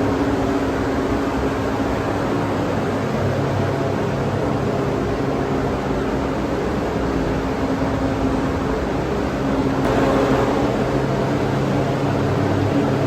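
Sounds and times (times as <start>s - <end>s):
machine humming: 9.8s - 13.0s.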